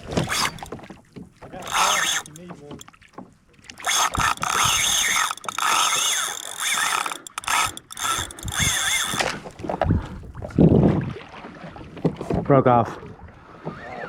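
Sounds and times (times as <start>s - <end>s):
fishing reel whirring and clicking: 0.0s - 0.8s, 1.6s - 2.5s, 3.7s - 9.5s.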